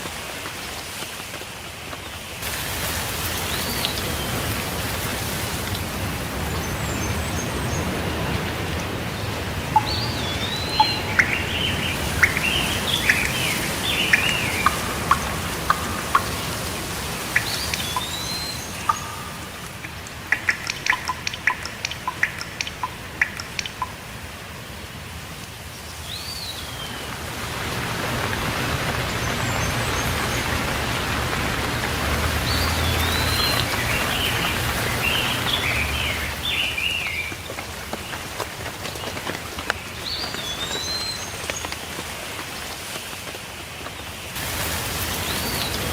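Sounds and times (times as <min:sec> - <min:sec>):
steady rain falling: 0:00.0 - 0:45.9
birds chirping and singing: 0:09.8 - 0:16.6, 0:17.3 - 0:19.7.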